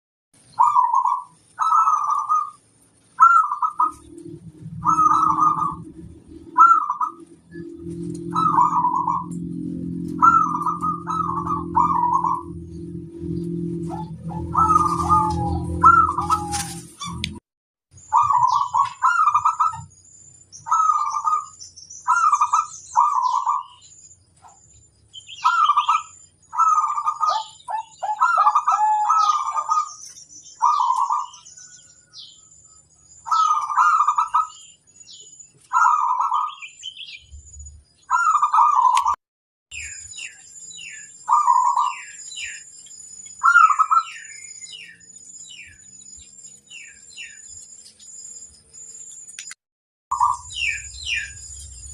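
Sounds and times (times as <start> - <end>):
small birds chirping: 0.4 - 51.9
dove cooing: 0.6 - 2.6, 3.2 - 17.4, 18.1 - 19.9, 20.6 - 23.8, 25.3 - 30.0, 30.6 - 31.5, 33.3 - 34.6, 35.7 - 36.7, 38.1 - 39.2, 41.3 - 42.6, 43.4 - 44.3
low hum: 2.7 - 17.4
thin high whine: 3.6 - 17.4.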